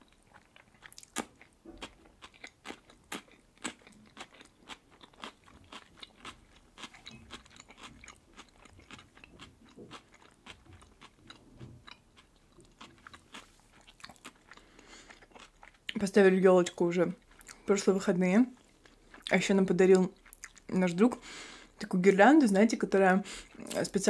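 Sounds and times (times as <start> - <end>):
cucumber crunching: 0.3 - 16.0.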